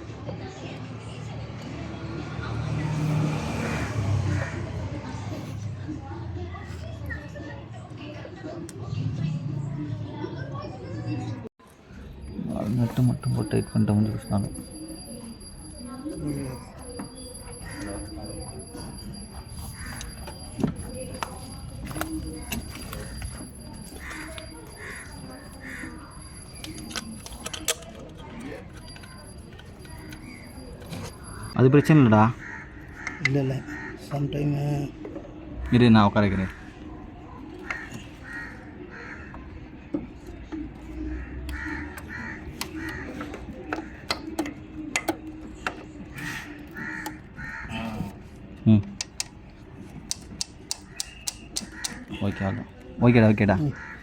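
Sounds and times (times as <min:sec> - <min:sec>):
crows cawing: 0:04.2 - 0:04.8, 0:17.6 - 0:18.4, 0:19.7 - 0:20.4, 0:23.4 - 0:26.7, 0:31.8 - 0:34.5, 0:35.6 - 0:39.7, 0:40.5 - 0:44.2, 0:46.1 - 0:48.2, 0:50.8 - 0:52.9, 0:53.5 - 0:54.0
metal tools clicking and clinking: 0:17.8 - 0:31.6
tools clicking on metal: 0:50.1 - 0:52.1.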